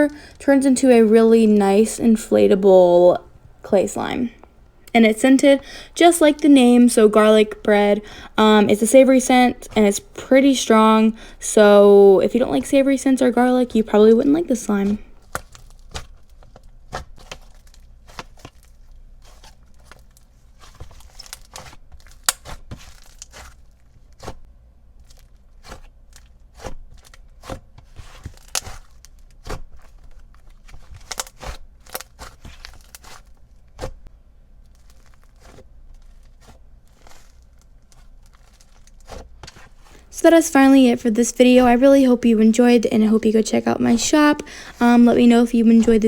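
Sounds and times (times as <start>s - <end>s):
slime popping and crackling: 14.5s - 24.4s, 25.0s - 39.8s.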